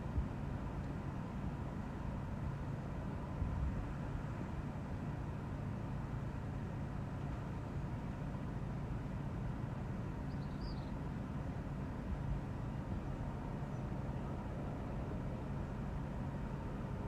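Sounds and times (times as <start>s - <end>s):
faint high chirp: 10.3s - 11.0s.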